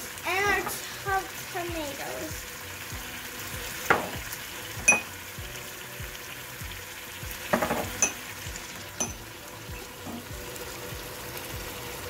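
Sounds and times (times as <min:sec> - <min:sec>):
chicken and onions sizzling: 0:00.0 - 0:12.0
spice bowls clinking against pot: 0:04.8 - 0:05.1, 0:07.5 - 0:08.3, 0:09.0 - 0:09.3.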